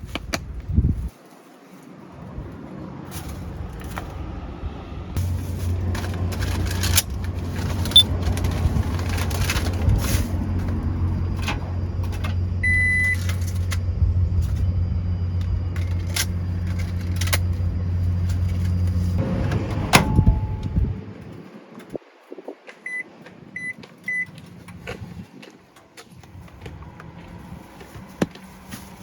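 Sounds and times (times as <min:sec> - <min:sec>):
short high beep: 0:12.6 - 0:13.2.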